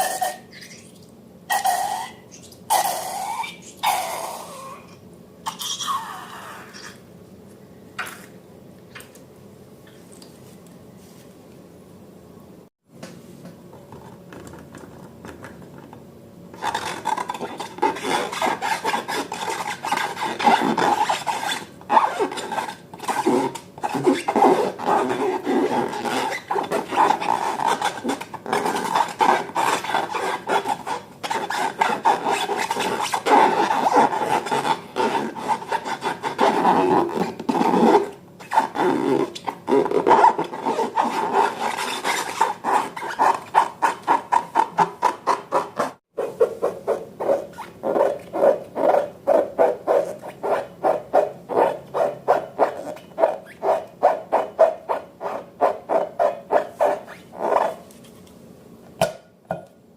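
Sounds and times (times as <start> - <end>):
balloons rubbed and squeaking: 16.6 - 57.9.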